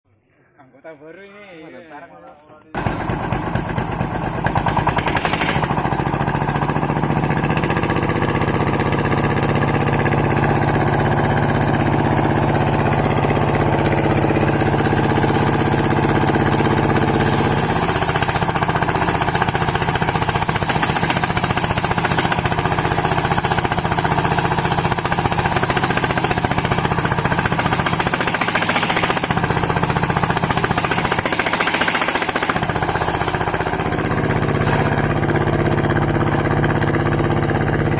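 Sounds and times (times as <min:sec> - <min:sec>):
circular sawmill cutting timber: 0:02.8 - 0:37.9.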